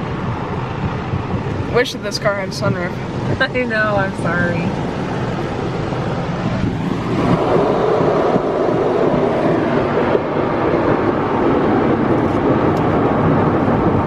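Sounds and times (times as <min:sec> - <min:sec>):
car wash brushes and water spray: 0:00.0 - 0:14.0.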